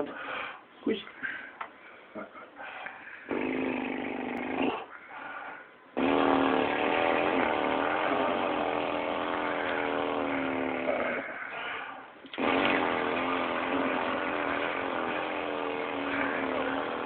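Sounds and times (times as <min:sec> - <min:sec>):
person doing lip trill: 0:03.3 - 0:05.0, 0:06.0 - 0:17.0.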